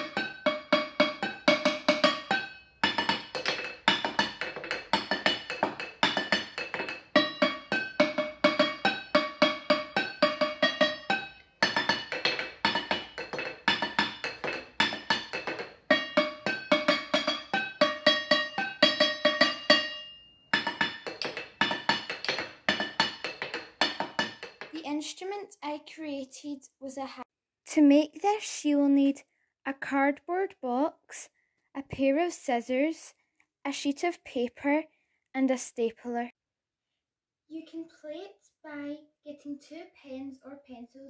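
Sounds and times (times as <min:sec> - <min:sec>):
wooden spoon striking saucepans: 0:00.0 - 0:24.8.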